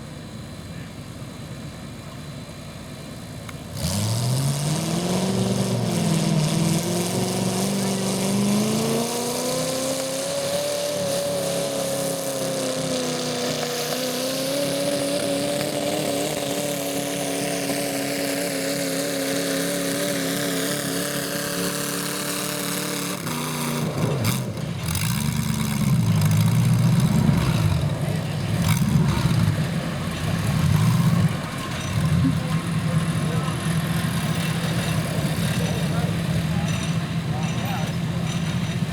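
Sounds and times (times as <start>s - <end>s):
garden tractor engine working: 0.0s - 38.9s
engine knocks: 23.3s - 38.9s.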